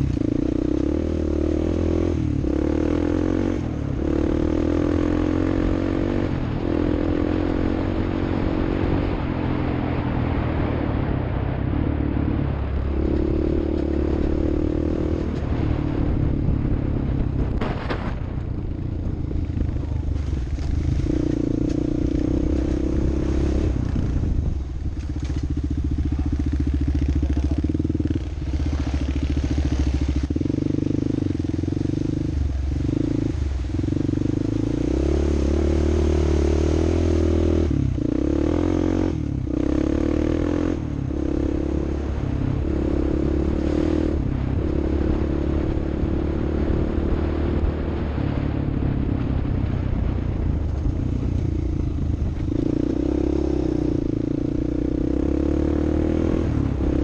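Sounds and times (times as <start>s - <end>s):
off-road vehicle engine revving: 0.0s - 9.2s, 20.2s - 48.4s, 52.2s - 57.0s.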